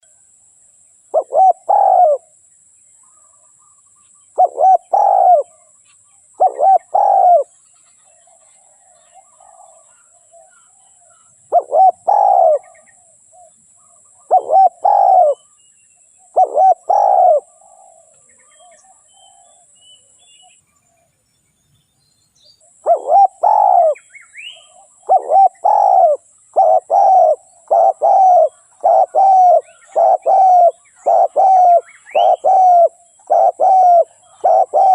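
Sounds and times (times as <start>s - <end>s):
dove cooing: 1.1s - 2.3s, 4.4s - 5.7s, 6.4s - 7.5s, 8.7s - 13.6s, 14.2s - 15.5s, 16.2s - 19.7s, 22.7s - 34.9s.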